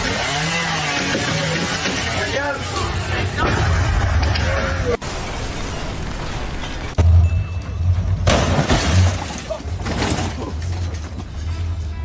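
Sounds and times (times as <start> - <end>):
crashing shattering noise: 3.4 - 11.2.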